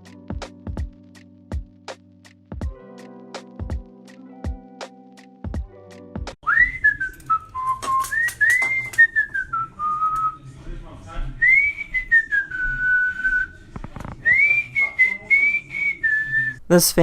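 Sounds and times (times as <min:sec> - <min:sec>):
person whistling a tune: 0:06.4 - 0:10.4, 0:11.4 - 0:13.5, 0:14.2 - 0:16.6.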